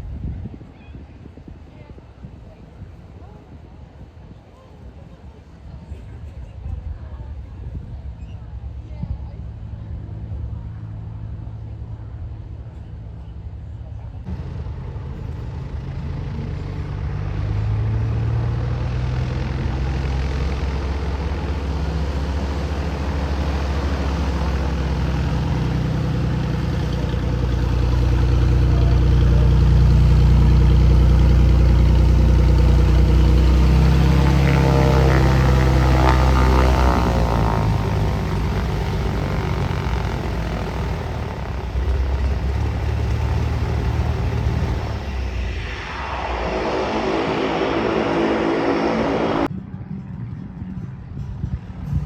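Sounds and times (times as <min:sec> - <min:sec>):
propeller airplane droning: 0:07.3 - 0:49.5.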